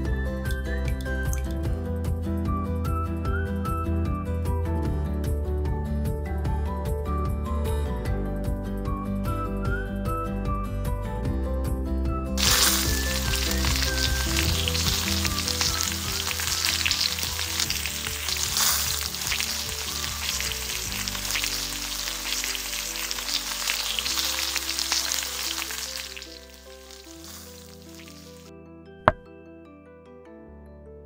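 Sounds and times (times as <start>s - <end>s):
background music: 0.0s - 31.0s
food sizzling in hot oil: 12.4s - 28.5s.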